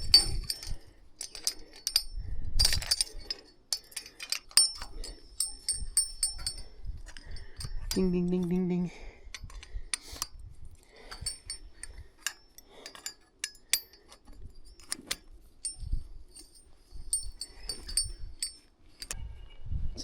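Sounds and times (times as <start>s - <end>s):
metallic clicks and clinks: 0.0s - 8.6s, 9.3s - 19.2s
high ringing wire pings: 4.6s - 6.7s.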